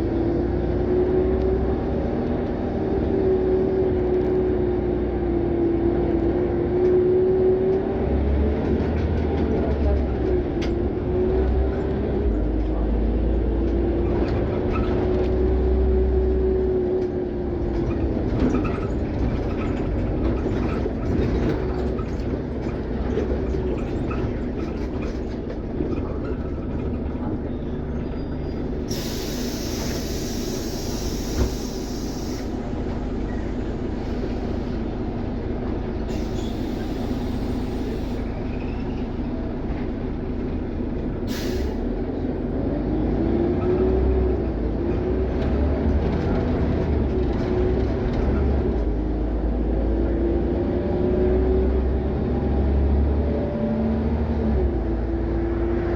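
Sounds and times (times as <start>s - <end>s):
bus engine and road rumble: 0.0s - 55.9s
compressed-air hiss: 28.9s - 32.6s.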